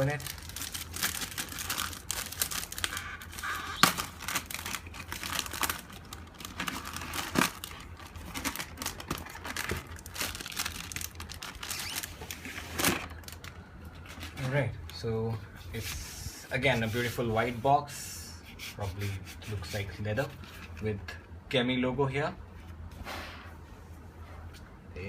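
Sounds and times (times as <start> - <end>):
packaging crinkling and rustling: 0.0 - 14.6.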